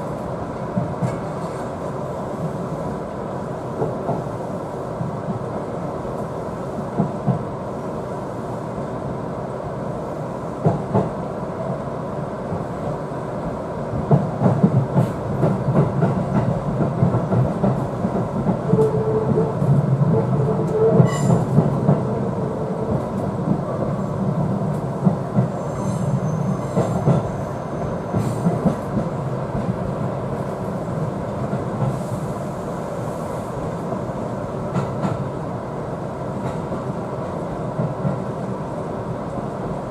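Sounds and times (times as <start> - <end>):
rail-joint clatter: 0.6 - 1.7, 14.1 - 23.8
train wheels rumbling: 12.4 - 39.9.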